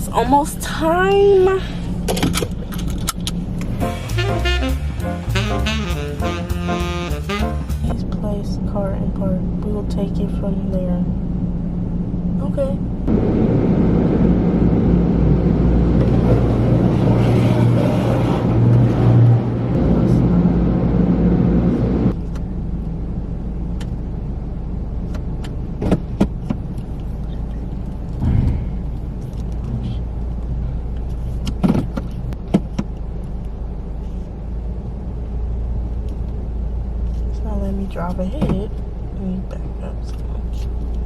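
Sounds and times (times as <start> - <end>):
low steady hum: 0.0 - 3.9, 7.8 - 17.0, 19.5 - 41.0
car wash rushing noise: 13.1 - 22.1
sharp knocks: 28.2 - 29.0.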